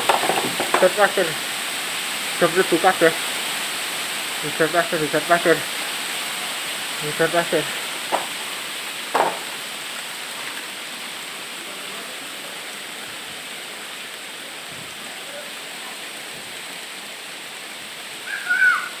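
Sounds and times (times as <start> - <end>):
person speaking: 0.0 - 1.4, 2.4 - 3.2, 4.4 - 5.7, 7.0 - 8.5.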